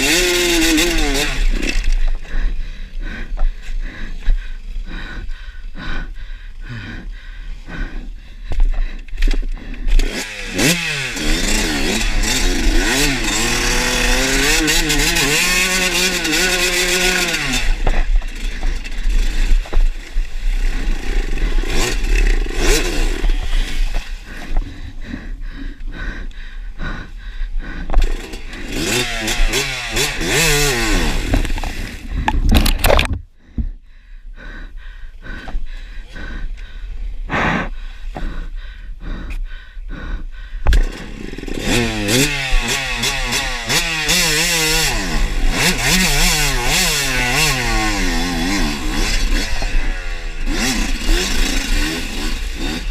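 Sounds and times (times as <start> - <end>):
dirt bike engine revving: 0.0 - 5.3, 9.1 - 33.0, 40.7 - 52.9.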